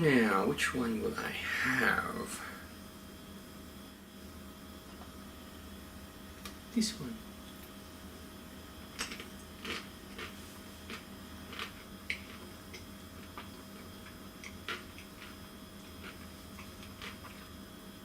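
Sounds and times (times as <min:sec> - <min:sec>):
faint steady hum: 0:00.0 - 0:18.0
crunchy chewing: 0:08.9 - 0:17.8.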